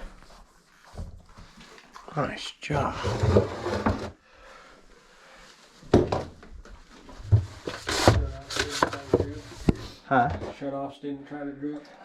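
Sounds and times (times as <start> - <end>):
hard objects knocking and clattering: 5.9 - 6.5.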